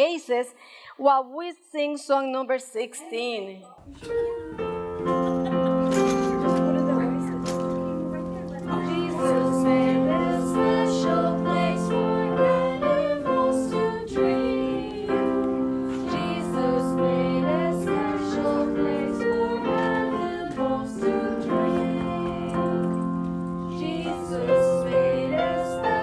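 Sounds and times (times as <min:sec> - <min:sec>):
piano accompaniment: 0:03.8 - 0:26.0
woman singing: 0:08.6 - 0:22.8, 0:23.8 - 0:26.0.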